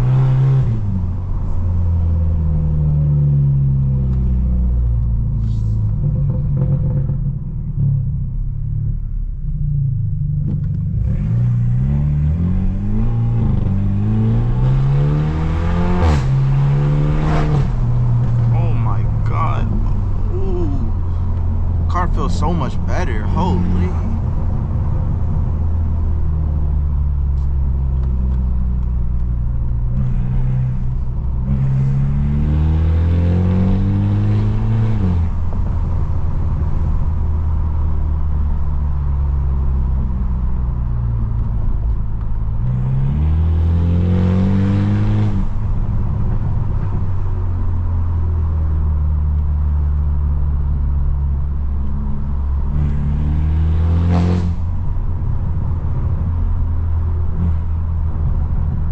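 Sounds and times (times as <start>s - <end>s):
car exhaust droning: 0.0s - 43.7s
car accelerating hard: 10.4s - 27.1s, 29.8s - 37.1s, 42.6s - 47.1s, 51.8s - 56.6s.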